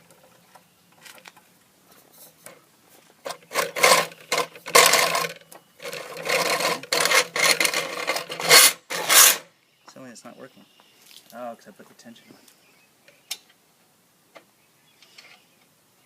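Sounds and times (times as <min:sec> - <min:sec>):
grinder mechanism rasping: 0:03.3 - 0:09.4.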